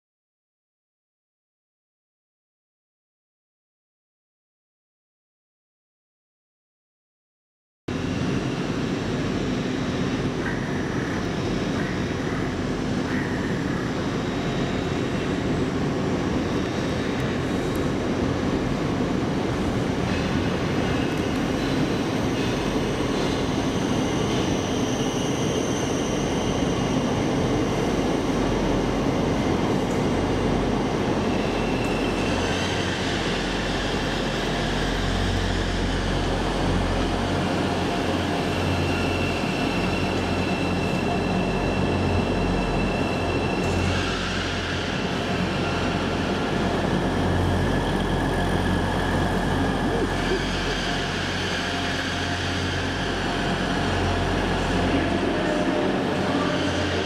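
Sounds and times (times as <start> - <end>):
deep train rumble: 7.9 - 57.0
passenger train running: 7.9 - 57.0.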